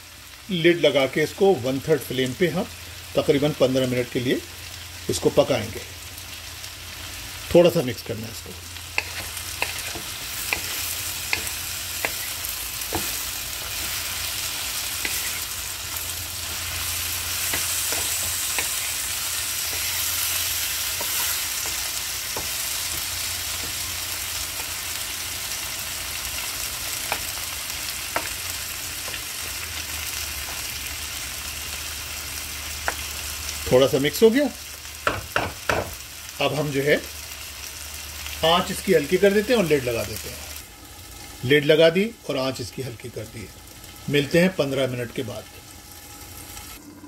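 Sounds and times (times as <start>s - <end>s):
vegetables sizzling in oil: 0.0s - 47.0s
spatula tapping pan: 9.0s - 13.2s
wooden spatula stirring: 9.0s - 23.8s.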